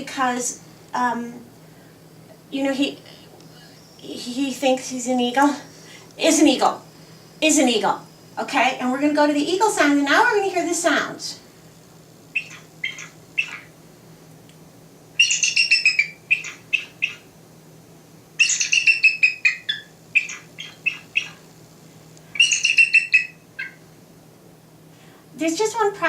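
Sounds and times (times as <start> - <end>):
eagle chittering calls: 12.3 - 13.8, 15.1 - 17.4, 18.4 - 21.5, 22.3 - 23.9.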